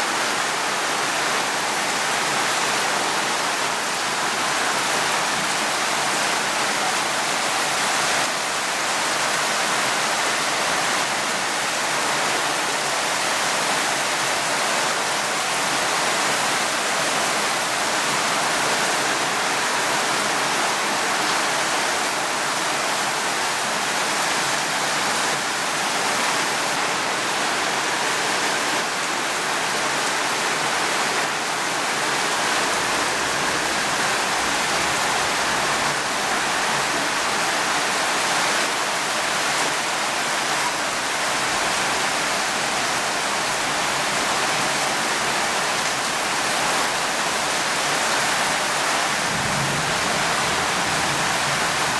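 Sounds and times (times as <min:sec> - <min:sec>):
steady rainfall hiss: 0:00.0 - 0:51.9.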